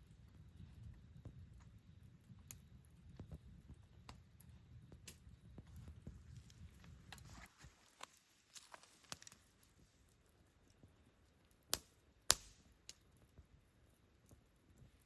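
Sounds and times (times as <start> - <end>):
campfire crackling: 0.0 - 15.0
loud sharp fire snaps: 0.8 - 7.3, 11.5 - 13.5.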